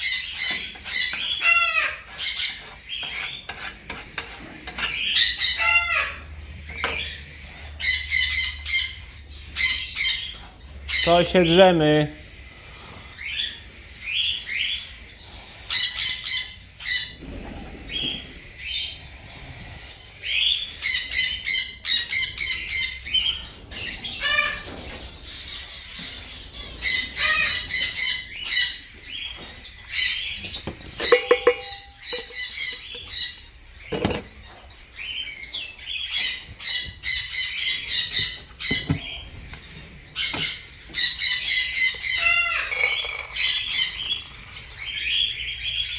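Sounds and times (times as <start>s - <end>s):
parrots screeching: 0.0s - 3.4s, 4.9s - 10.3s, 24.1s - 24.8s, 31.0s - 33.4s, 40.2s - 45.3s.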